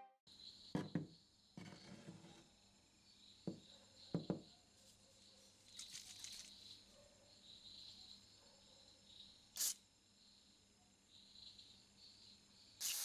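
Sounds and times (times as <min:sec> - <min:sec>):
knock: 0:00.7 - 0:01.8, 0:03.4 - 0:04.5
aerosol spray hiss: 0:09.6 - 0:09.8, 0:12.8 - 0:13.0
sharp spray burst: 0:09.6 - 0:09.8, 0:12.8 - 0:13.0.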